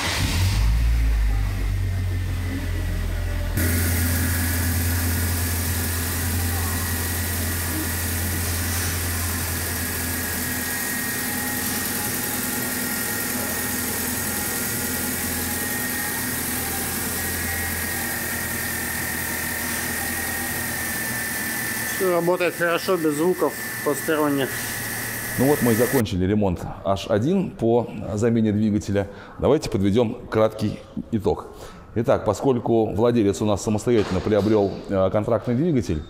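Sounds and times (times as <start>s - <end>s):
engine idling with whine: 0.1s - 26.0s.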